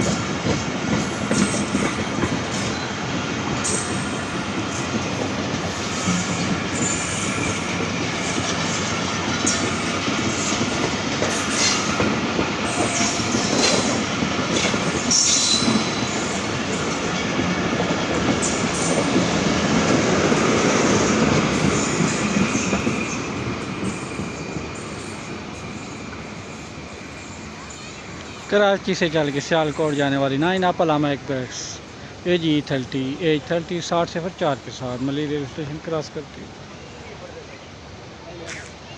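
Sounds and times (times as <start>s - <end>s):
train wheels clattering: 0.0s - 28.4s
train wheel squeals: 0.0s - 30.7s, 31.5s - 35.2s.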